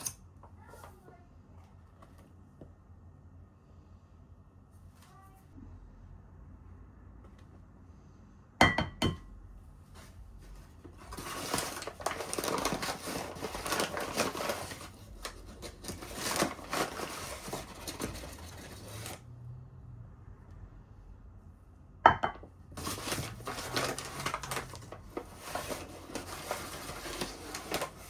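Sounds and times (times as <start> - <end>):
rustling and crinkling: 9.8 - 19.2, 22.7 - 28.0.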